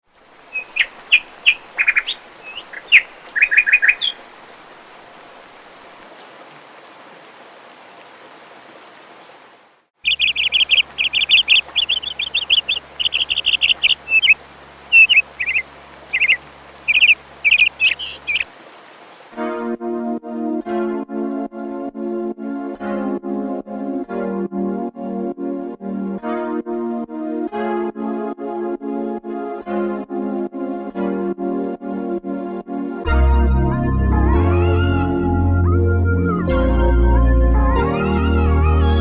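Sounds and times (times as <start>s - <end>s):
songbirds chirping: 0.2s - 6.2s, 10.0s - 19.2s.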